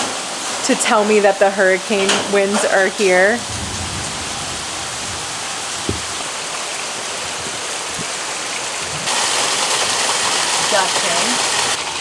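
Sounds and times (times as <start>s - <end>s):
heavy rain and wind: 0.0s - 12.0s
short low thump: 3.4s - 6.3s.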